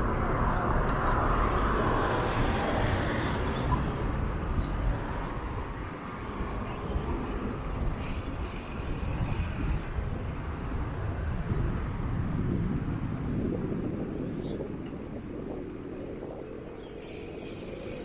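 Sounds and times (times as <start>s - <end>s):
wind buffeting microphone: 0.0s - 18.0s
bicycle tyres on wet ground: 6.5s - 18.0s.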